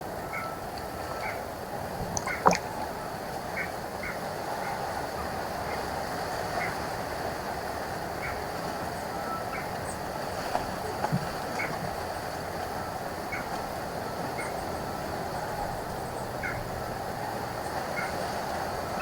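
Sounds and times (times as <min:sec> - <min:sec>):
steady outdoor hiss: 0:00.0 - 0:19.0.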